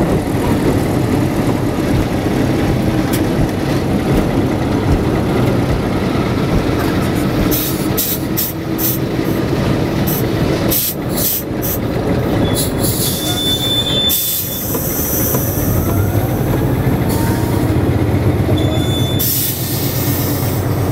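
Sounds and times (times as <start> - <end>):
radial engine rumbling with rattling: 0.0 - 20.9
thin high squeal: 18.6 - 19.9.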